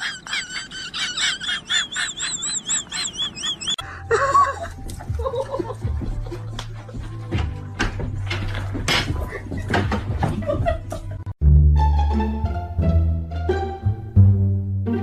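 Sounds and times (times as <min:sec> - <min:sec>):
rapid high bird-like calls: 0:00.0 - 0:03.8.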